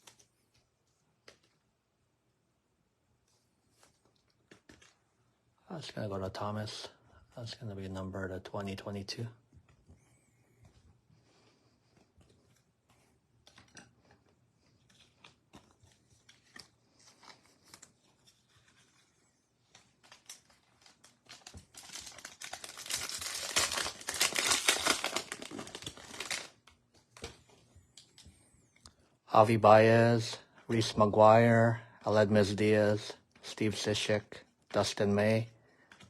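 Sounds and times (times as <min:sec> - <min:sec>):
cards rustling and clicking: 0:00.0 - 0:01.6, 0:03.3 - 0:05.0, 0:11.9 - 0:28.9
plastic wrapper crinkling and tearing: 0:13.4 - 0:27.3.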